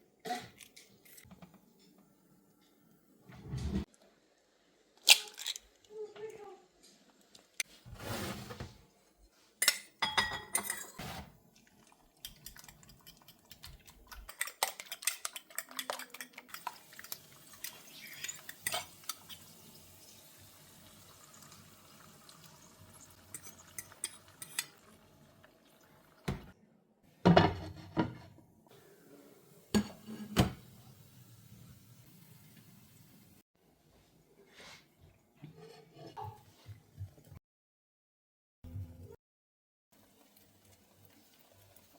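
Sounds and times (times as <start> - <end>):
dishes and cutlery clinking: 9.6 - 11.3, 12.3 - 19.4, 23.3 - 24.8, 29.8 - 30.6.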